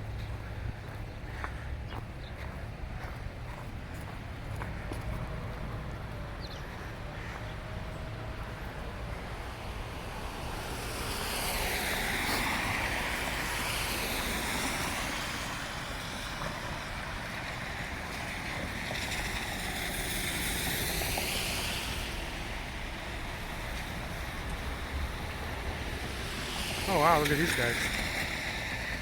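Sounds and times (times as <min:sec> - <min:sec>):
car tyres hissing on snowy road: 0:06.4 - 0:29.0.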